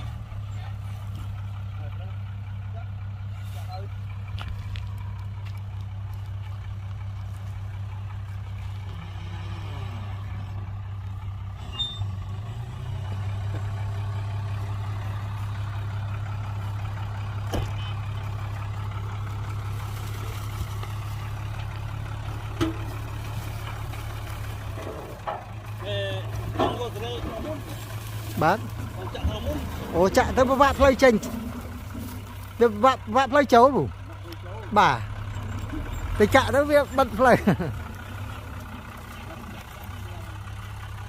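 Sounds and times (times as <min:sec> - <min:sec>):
diesel engine droning: 0:00.0 - 0:41.0.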